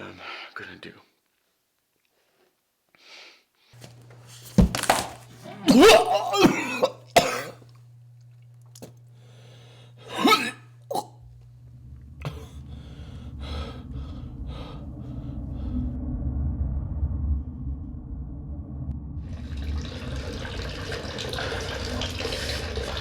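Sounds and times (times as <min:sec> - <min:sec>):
man coughing: 0:05.4 - 0:07.7, 0:10.0 - 0:11.2, 0:12.2 - 0:12.6
steady low rumble: 0:10.7 - 0:21.2.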